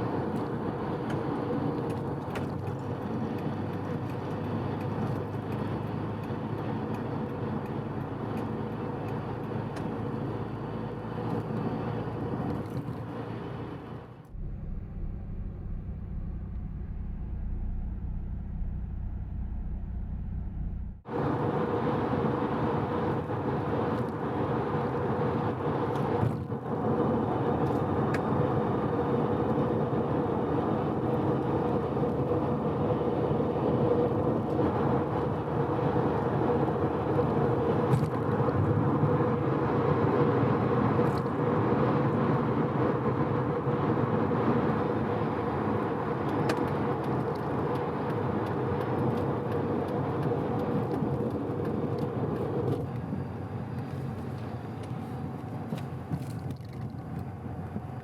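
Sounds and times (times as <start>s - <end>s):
tyre and road noise: 0.0s - 58.0s
car engine droning at cruise: 14.2s - 22.5s.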